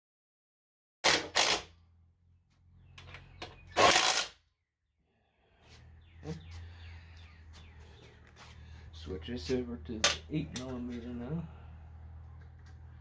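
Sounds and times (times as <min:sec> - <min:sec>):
low steady hum: 0:05.9 - 0:13.0
tools clicking and knocking: 0:10.0 - 0:10.8.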